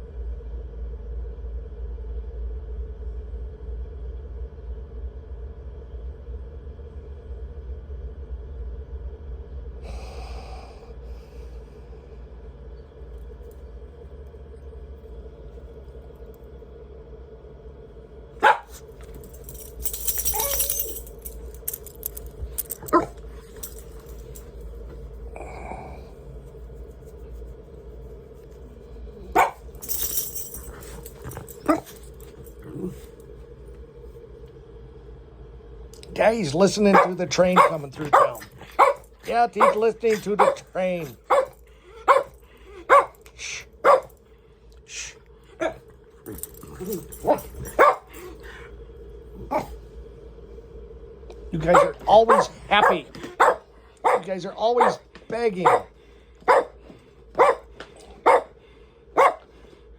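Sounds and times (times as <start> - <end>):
steady low hum: 0.0 - 59.9
train rumbling: 8.6 - 59.8
dog barking sharply: 18.4 - 18.8, 29.4 - 29.6, 36.9 - 43.2, 43.8 - 44.1, 47.2 - 48.2, 51.7 - 55.0, 55.6 - 55.9, 56.5 - 56.8, 57.4 - 57.6, 58.2 - 58.5, 59.2 - 59.4.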